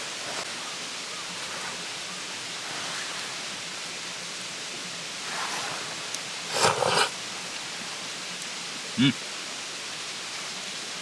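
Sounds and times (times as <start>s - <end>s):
rustle or scrape: 0.0s - 3.8s, 5.1s - 7.2s
distant running water: 0.0s - 11.0s.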